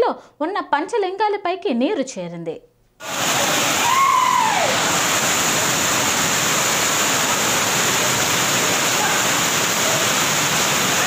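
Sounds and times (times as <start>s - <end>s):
floodwater rushing: 3.0s - 11.0s.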